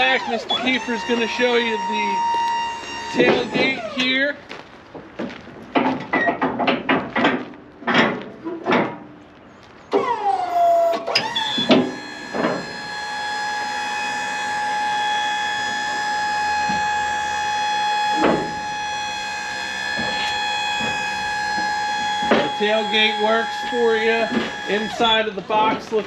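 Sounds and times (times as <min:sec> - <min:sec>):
hydraulic pump motor whine: 0:00.0 - 0:04.4, 0:09.9 - 0:26.0.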